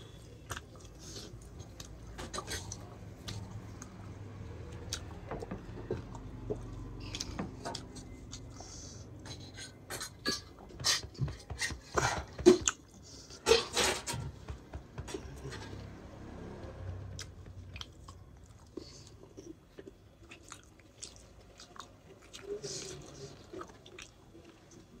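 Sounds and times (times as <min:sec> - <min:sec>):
man chewing food: 0:00.0 - 0:13.5, 0:14.1 - 0:25.0.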